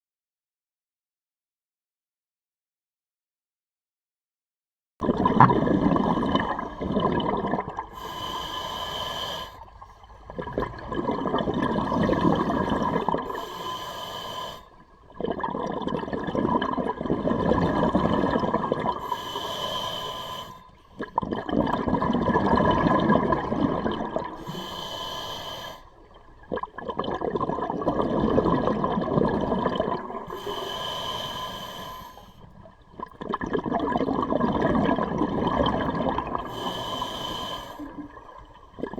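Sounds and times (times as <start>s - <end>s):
exhaled bubbles rumbling: 5.0s - 8.6s, 9.6s - 13.4s, 14.7s - 19.4s, 20.9s - 24.8s, 25.9s - 30.8s, 32.4s - 37.2s, 37.8s - 38.9s
regulator breath hissing: 8.0s - 9.6s, 13.3s - 14.7s, 19.0s - 20.6s, 24.4s - 25.9s, 30.3s - 32.3s, 36.5s - 37.9s.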